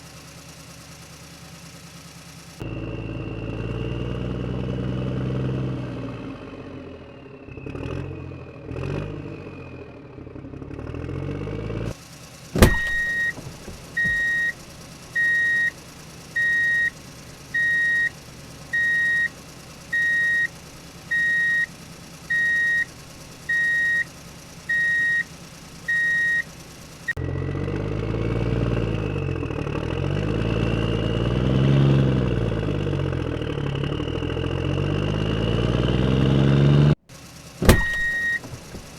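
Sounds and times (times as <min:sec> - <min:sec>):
truck engine revving: 0:00.0 - 0:38.9
reversing alarm beeping: 0:12.6 - 0:14.6, 0:15.2 - 0:15.8, 0:16.4 - 0:20.5, 0:21.1 - 0:21.7, 0:22.3 - 0:22.9, 0:23.5 - 0:24.1, 0:24.7 - 0:25.3, 0:25.9 - 0:26.5, 0:37.7 - 0:38.8.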